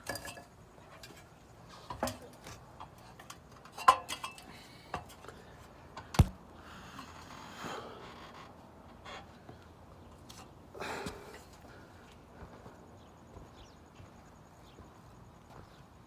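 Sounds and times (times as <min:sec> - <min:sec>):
dull thud: 0:06.2 - 0:06.4.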